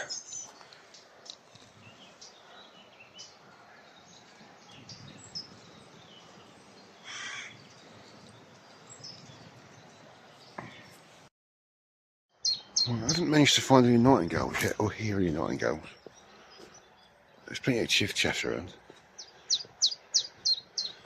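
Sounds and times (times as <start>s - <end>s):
birds chirping: 0.0s - 11.3s, 12.3s - 21.0s
wind on microphone: 4.4s - 6.8s
harsh rasping bird call: 7.0s - 7.6s.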